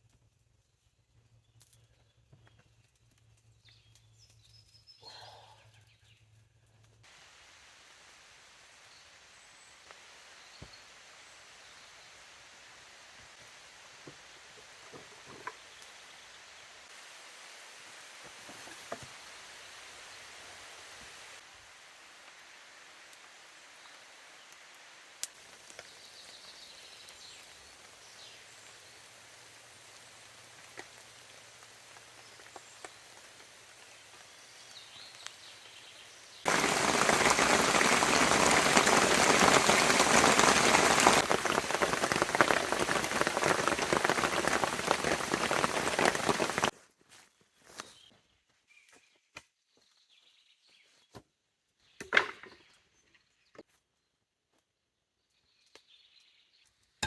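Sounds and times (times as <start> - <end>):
faint rain: 2.9 - 46.8
heavy rain pouring: 36.5 - 46.7.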